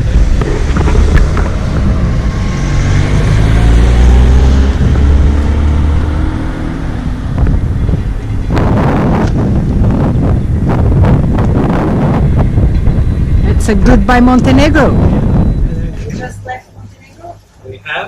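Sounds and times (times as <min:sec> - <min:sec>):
wind buffeting microphone: 0:00.0 - 0:16.9
boat engine running: 0:07.0 - 0:16.9.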